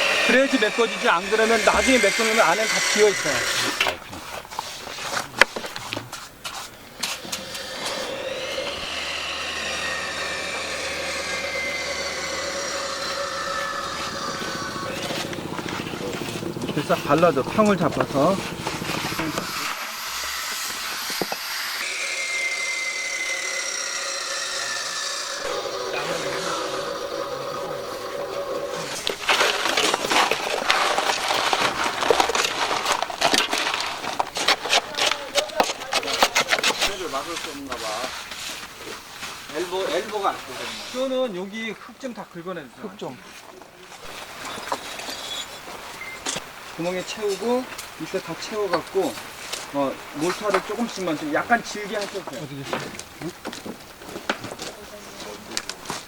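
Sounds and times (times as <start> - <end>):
motor drone with held tones: 0.0 - 4.0, 7.0 - 30.9
hand tool scraping brick: 0.0 - 9.1, 28.8 - 39.0.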